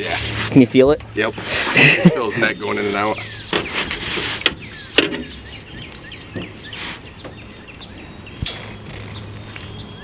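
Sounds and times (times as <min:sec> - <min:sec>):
birds chirping: 0:00.0 - 0:10.0
rustle: 0:02.8 - 0:09.8.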